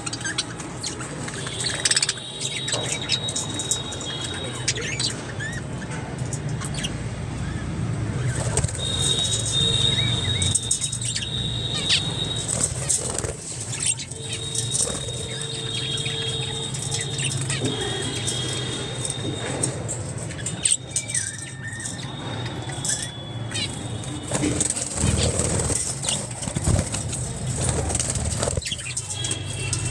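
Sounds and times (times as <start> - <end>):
budgerigars chirping: 0.0 - 29.9
wings fluttering: 8.2 - 18.8, 22.7 - 29.9
clicks and scratches: 11.9 - 29.9.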